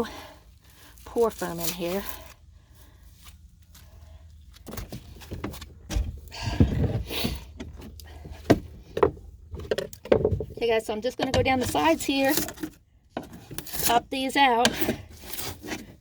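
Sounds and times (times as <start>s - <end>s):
foam scraping and crunching: 0.8s - 2.4s, 13.3s - 16.0s.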